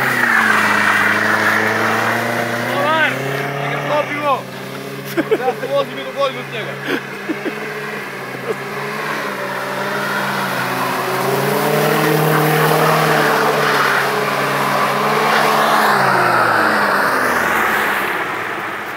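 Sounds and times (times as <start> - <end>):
car engine revving hard: 0.0 - 18.8
tyres churning slush: 0.0 - 18.9.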